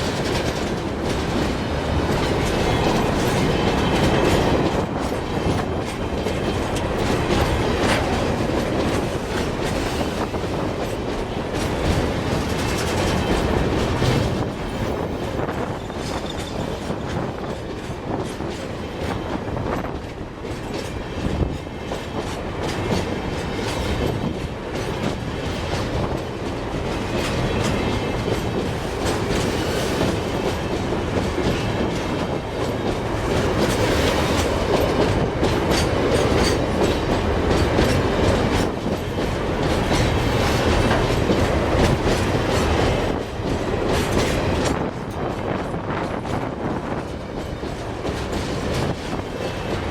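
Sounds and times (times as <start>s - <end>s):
train wheels clacking over rail joints: 0.0s - 49.9s.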